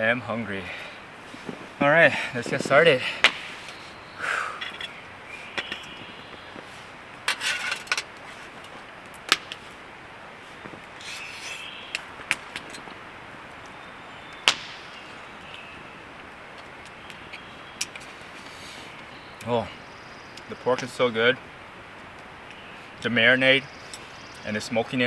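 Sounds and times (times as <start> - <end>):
utensils scraping food: 11.0 - 11.8.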